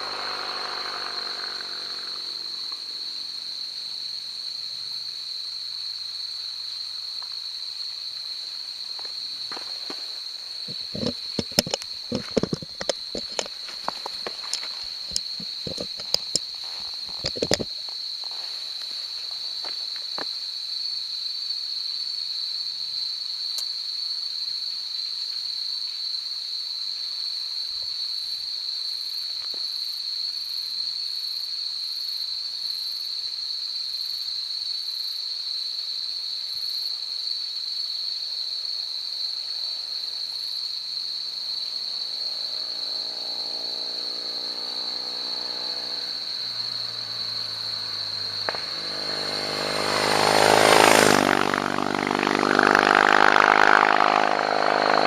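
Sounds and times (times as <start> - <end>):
motorcycle engine approaching: 0.0 - 4.2, 10.6 - 17.7, 42.0 - 55.0
insect chorus: 0.0 - 55.0
pulsing insect call: 0.0 - 55.0.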